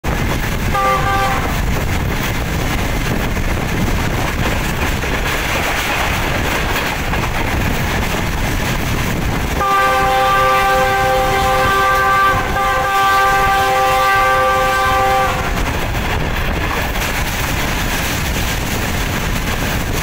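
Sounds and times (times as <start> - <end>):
train rumbling: 0.0 - 20.0
train horn chord: 0.7 - 1.6, 9.6 - 15.6.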